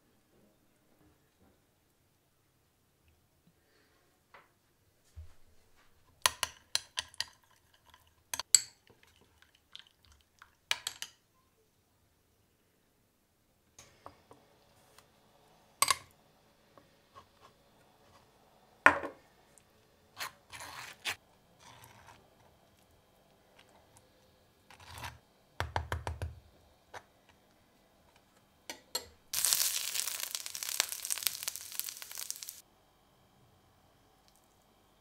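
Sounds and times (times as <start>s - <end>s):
spoon scraping crisp toast: 20.2s - 22.9s, 24.7s - 25.2s
greens crackling in frying pan: 29.3s - 32.6s.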